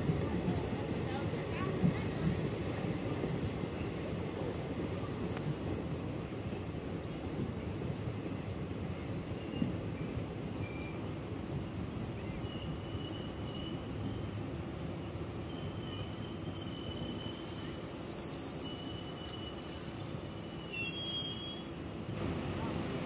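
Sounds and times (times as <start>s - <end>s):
train wheels rumbling on rail: 0.0s - 23.0s
faint high squeals: 12.2s - 21.8s.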